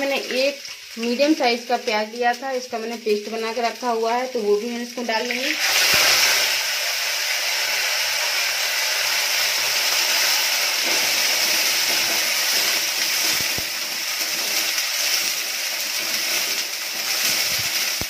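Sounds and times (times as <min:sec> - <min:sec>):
onion paste sizzling in oil: 0:00.0 - 0:18.0.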